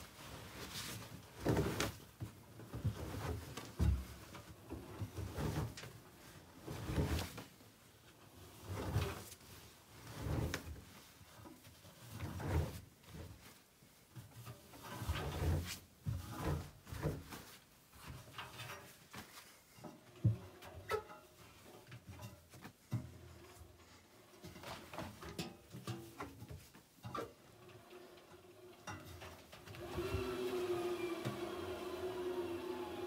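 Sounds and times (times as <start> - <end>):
laundry tumbling in a drum: 0.1 - 7.6.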